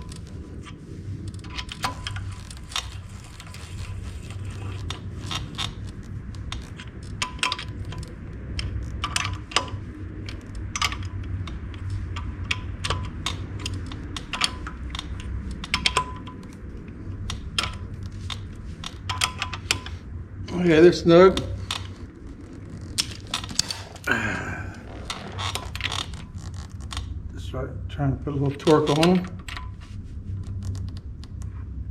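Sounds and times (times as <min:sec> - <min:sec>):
wrench clicking on steel nuts: 0:00.0 - 0:20.0
steady low hum: 0:00.0 - 0:31.9.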